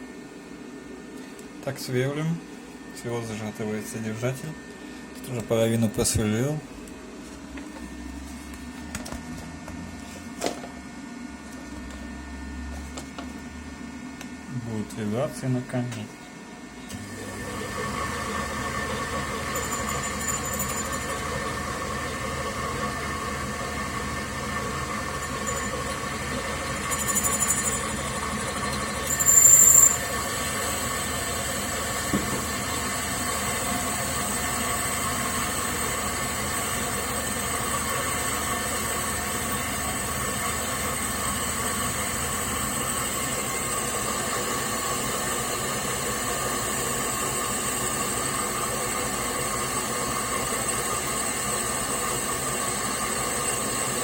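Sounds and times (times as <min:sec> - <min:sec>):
metal lathe whining: 0:16.9 - 0:54.0
drill squealing: 0:19.2 - 0:21.5, 0:24.8 - 0:31.1.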